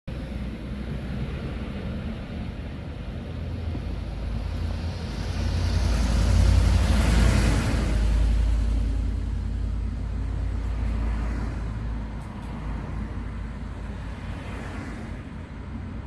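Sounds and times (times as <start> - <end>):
motor vehicle passing: 3.8 - 12.0.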